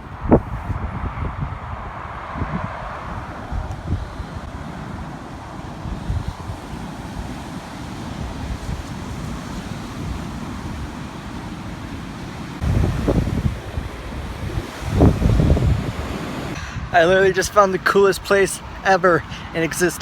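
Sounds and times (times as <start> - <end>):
wind across microphone: 0.0 - 11.3, 12.6 - 17.4.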